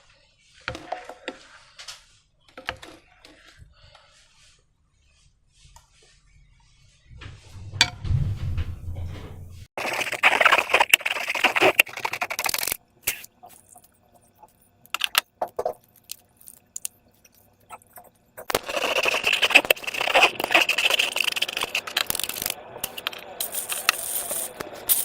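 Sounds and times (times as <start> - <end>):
slime and balloons crackling: 9.8 - 14.4, 15.0 - 25.0.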